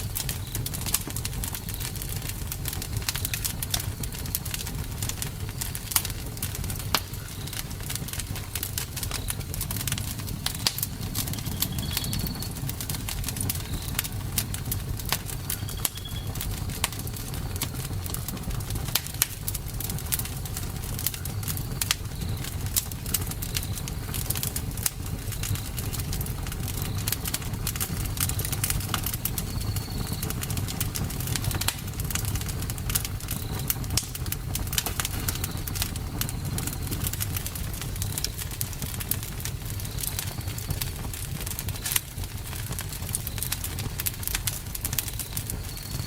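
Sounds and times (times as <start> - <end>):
low rumble of flames: 0.0 - 46.0
wood crackling and popping: 0.0 - 46.0
faint high chirps: 9.0 - 14.2, 15.5 - 16.4.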